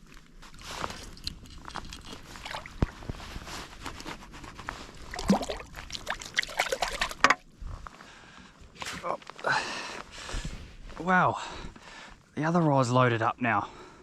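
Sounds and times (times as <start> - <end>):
water sloshing: 0.9 - 3.2, 4.9 - 7.4.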